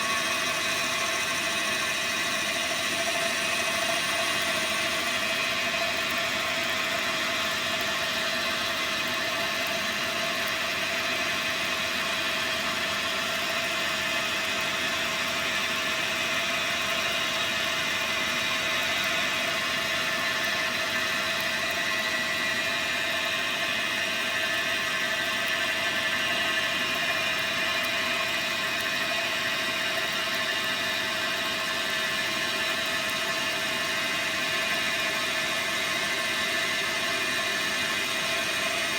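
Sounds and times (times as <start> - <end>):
lathe running: 0.0 - 10.1, 17.9 - 38.9.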